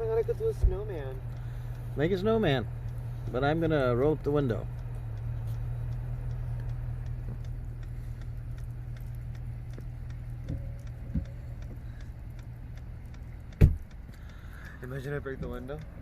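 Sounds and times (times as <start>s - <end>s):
fast regular ticking: 0.0s - 16.0s
low hum inside truck cabin: 0.0s - 16.0s
sharp thump: 13.6s - 13.8s.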